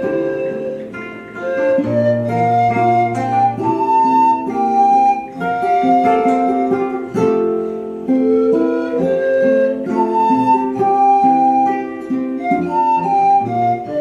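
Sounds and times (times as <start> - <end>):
pan flute melody: 0.0 - 14.0
plucked classical guitar: 0.0 - 14.0
ukulele: 0.0 - 14.0.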